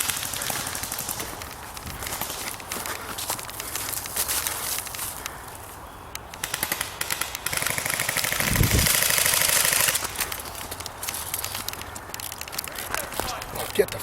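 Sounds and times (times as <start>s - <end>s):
airsoft gun firing full-auto: 0.0s - 1.4s, 6.4s - 11.6s.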